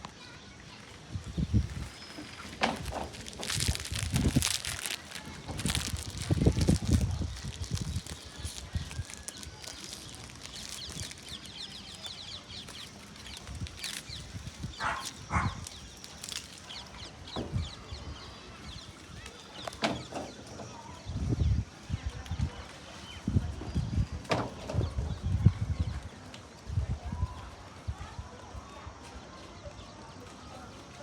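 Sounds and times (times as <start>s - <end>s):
birds chirping: 0.2s - 21.2s.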